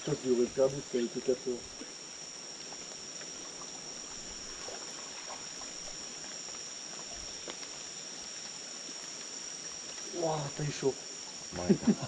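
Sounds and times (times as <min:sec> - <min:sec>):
insects chorus: 0:00.0 - 0:12.0
soft watery hiss: 0:00.0 - 0:12.0
faint chirps and clicks: 0:01.0 - 0:10.2.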